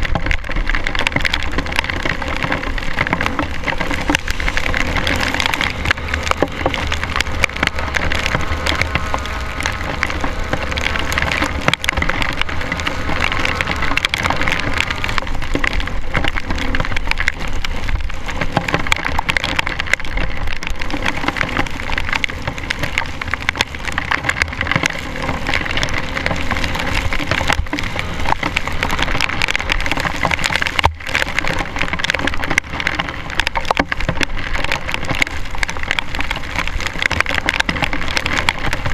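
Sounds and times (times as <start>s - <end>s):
rain hitting camera: 0.0s - 38.9s
dirt bike engine: 3.2s - 16.6s.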